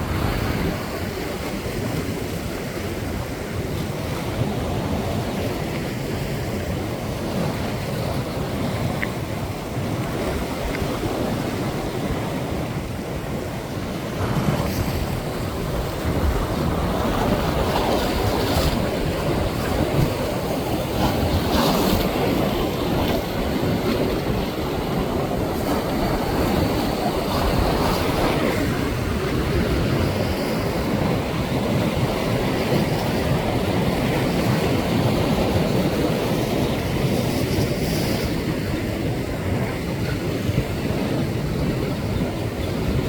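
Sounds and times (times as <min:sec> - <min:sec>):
ocean waves breaking: 0:00.0 - 0:43.0.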